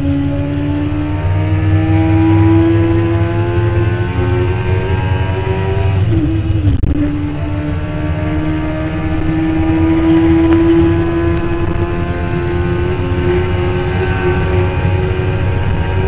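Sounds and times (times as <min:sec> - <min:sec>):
motorcycle engine at high revs: 0:00.0 - 0:16.0
wind rush on microphone: 0:03.8 - 0:16.0.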